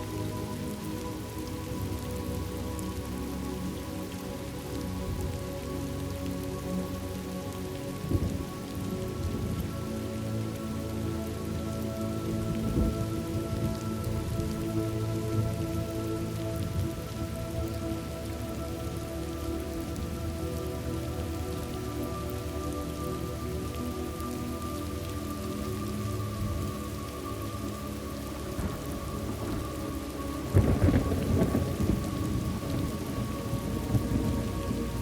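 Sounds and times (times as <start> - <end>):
steady rain falling: 0.0 - 35.0
low thunder rumbles: 12.4 - 14.6, 28.5 - 35.0.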